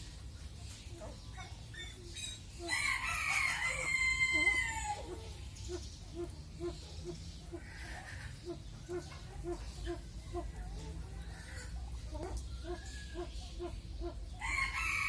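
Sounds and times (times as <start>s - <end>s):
rooster crowing: 2.7s - 5.0s, 14.4s - 15.0s.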